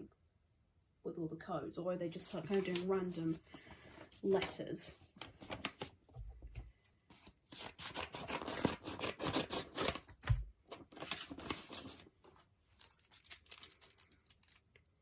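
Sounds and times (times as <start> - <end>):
plastic packaging crinkling: 7.6 - 15.0.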